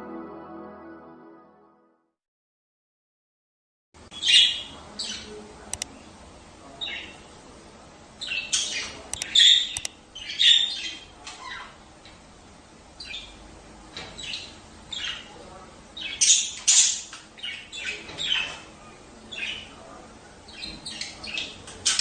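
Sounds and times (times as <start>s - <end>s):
budgerigars squawking and chirping: 4.2s - 5.4s, 8.2s - 11.8s, 14.2s - 15.3s, 16.0s - 18.6s
sharp clicks: 5.7s - 5.9s, 9.1s - 10.0s.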